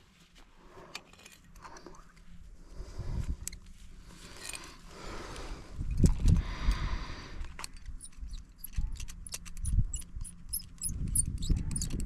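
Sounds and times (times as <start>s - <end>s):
climbing hardware clinking: 7.4s - 12.0s.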